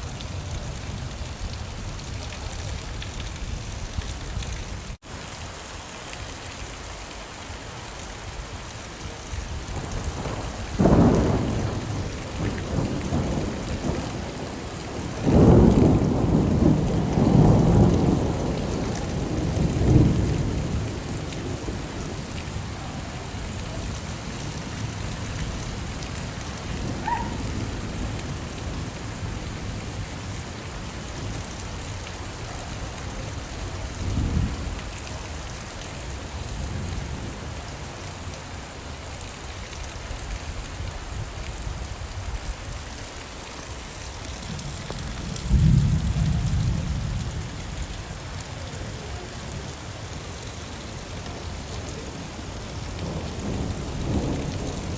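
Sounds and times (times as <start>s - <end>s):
steady rain: 0.0s - 54.9s
rolling thunder rumble: 9.5s - 31.6s, 32.5s - 35.2s, 44.4s - 48.0s, 52.7s - 54.9s.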